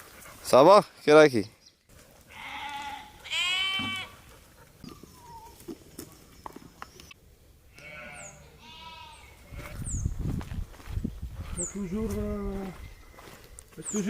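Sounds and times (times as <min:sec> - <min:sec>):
goat bleating: 0:02.3 - 0:04.3, 0:07.7 - 0:09.9.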